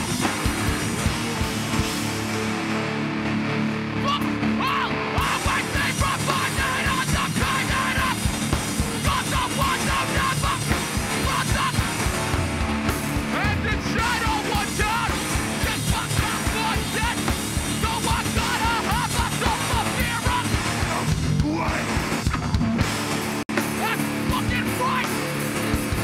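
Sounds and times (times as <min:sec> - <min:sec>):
distorted guitar chords: 0:00.0 - 0:26.0
fast drums: 0:00.0 - 0:26.0
shouted vocals: 0:04.0 - 0:12.2, 0:13.3 - 0:22.0, 0:23.8 - 0:25.2.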